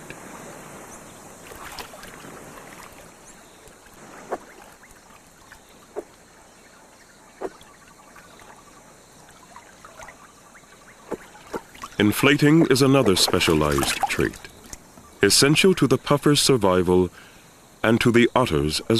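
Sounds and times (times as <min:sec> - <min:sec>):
sharp water splashes: 0:00.0 - 0:15.0
shallow water sloshing and trickling: 0:00.0 - 0:15.2.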